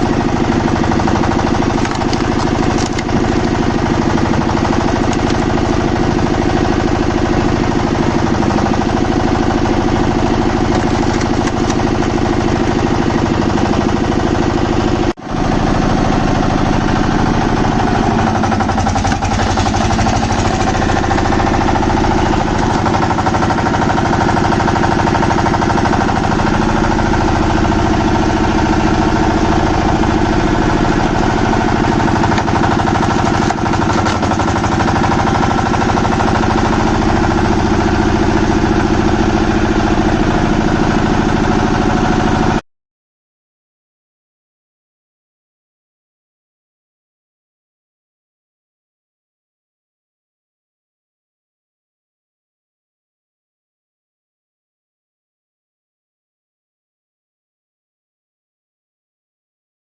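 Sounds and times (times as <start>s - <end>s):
machine engine pulsing: 0.0s - 42.6s.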